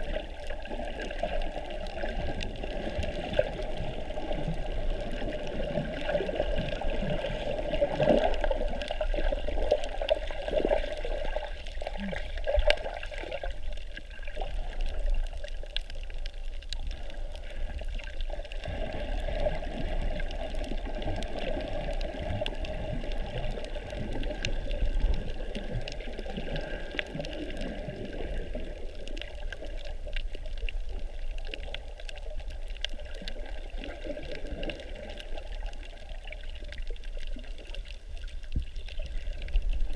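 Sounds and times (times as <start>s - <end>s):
water sloshing and bubbling: 0.0s - 39.9s
faint clicks: 19.5s - 39.9s.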